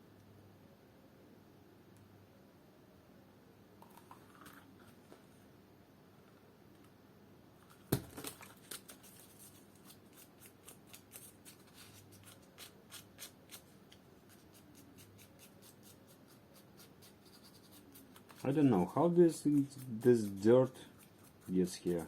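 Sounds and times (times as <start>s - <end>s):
small clicks and light scratches: 7.6s - 22.0s.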